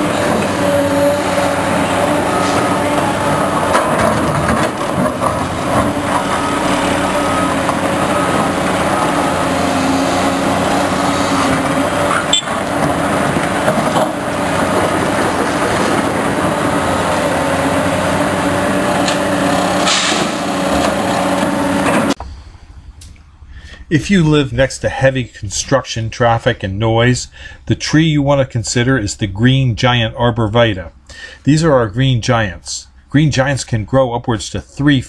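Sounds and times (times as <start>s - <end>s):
construction machinery engine: 0.0s - 22.3s
repeating beep: 12.3s - 12.6s.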